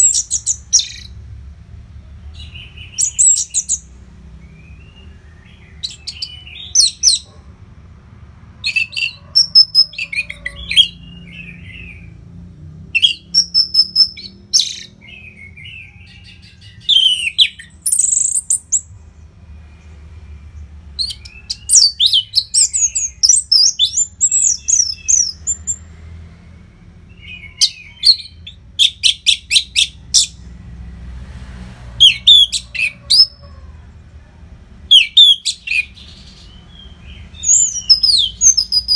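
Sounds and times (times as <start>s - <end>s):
thrush singing whistled phrases: 13.0s - 15.9s, 16.8s - 18.9s, 21.0s - 25.8s, 27.1s - 30.4s, 32.0s - 33.4s, 34.9s - 38.9s.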